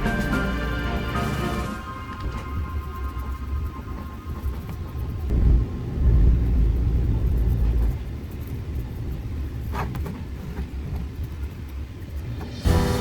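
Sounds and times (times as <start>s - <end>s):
sustained music chord: 0.0s - 5.2s, 12.6s - 13.0s
deep rumbling drone: 0.0s - 9.5s, 12.2s - 13.0s.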